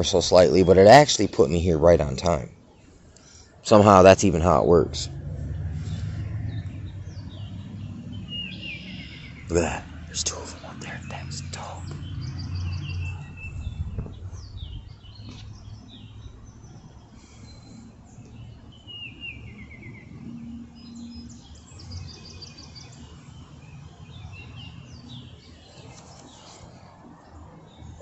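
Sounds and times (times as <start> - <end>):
small birds chirping: 0.0 - 28.0
low background rumble: 3.6 - 16.8.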